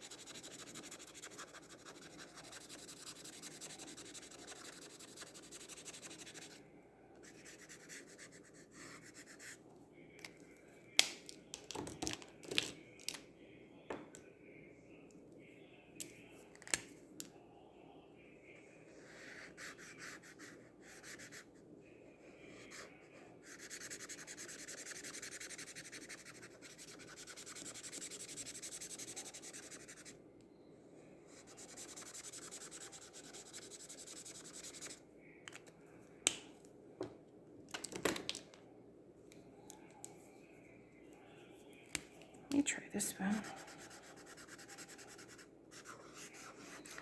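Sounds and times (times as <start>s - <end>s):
marker scratching on paper: 0.0s - 6.6s, 7.2s - 9.6s, 19.0s - 21.5s, 22.5s - 30.2s, 31.3s - 35.0s, 43.4s - 47.0s.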